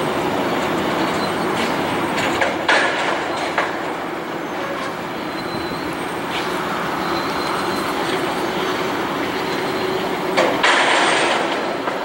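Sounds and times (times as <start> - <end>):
diesel locomotive engines droning: 0.0 - 12.0.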